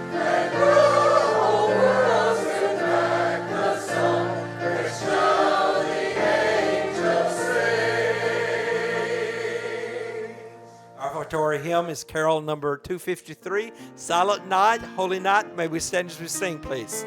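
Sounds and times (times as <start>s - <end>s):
choir singing sacred song: 0.0s - 11.5s
instrumental accompaniment: 13.6s - 17.0s.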